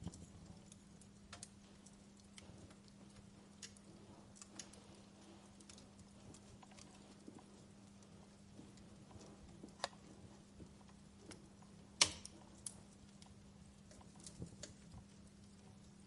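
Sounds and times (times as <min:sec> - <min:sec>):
faint low hum: 0:00.0 - 0:16.0
wood fire crackling and popping: 0:00.0 - 0:16.0.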